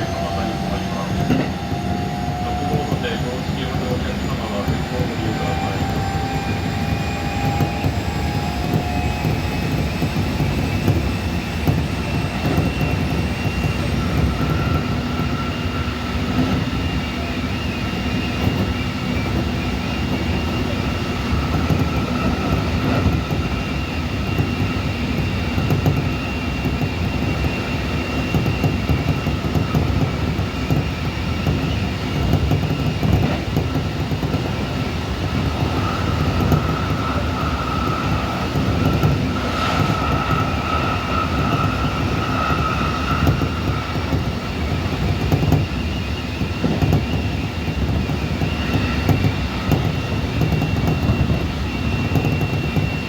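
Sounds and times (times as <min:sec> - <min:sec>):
electric train motor whine: 0:00.0 - 0:53.0
wheels rumbling on rails: 0:00.0 - 0:53.0.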